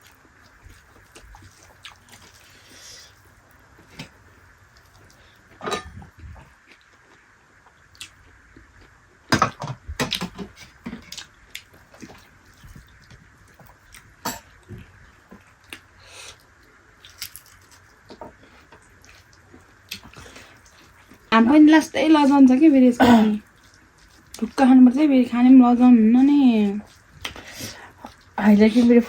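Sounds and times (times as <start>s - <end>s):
chewing and wet smacking: 0.0s - 4.1s, 4.7s - 5.6s, 6.2s - 9.0s, 11.0s - 21.3s, 23.4s - 25.1s, 26.1s - 29.0s.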